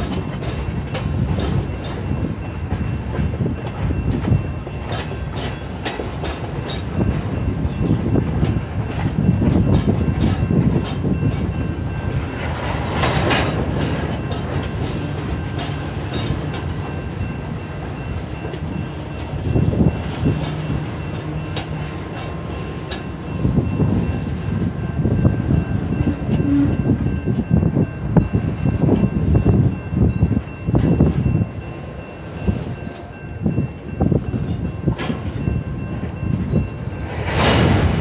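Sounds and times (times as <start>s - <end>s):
freight train rumbling: 0.0s - 38.0s.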